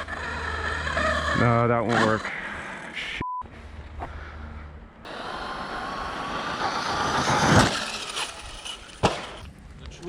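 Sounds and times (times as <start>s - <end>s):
rc car motor whining: 0.0s - 3.0s, 5.1s - 9.5s
tyres churning on dirt: 0.0s - 3.1s, 5.0s - 9.5s.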